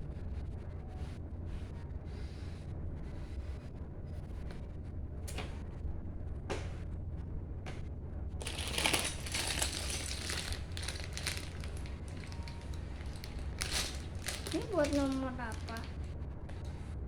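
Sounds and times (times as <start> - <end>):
plastic pieces clicking and rattling: 8.4 - 15.9.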